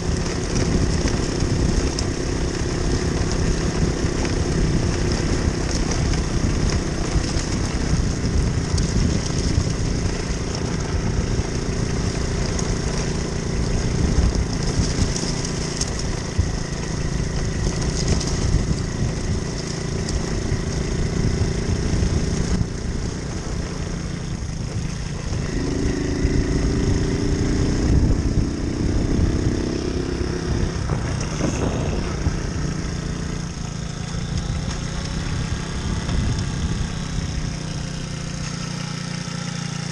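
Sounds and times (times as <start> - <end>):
moped engine running: 0.0 - 39.9.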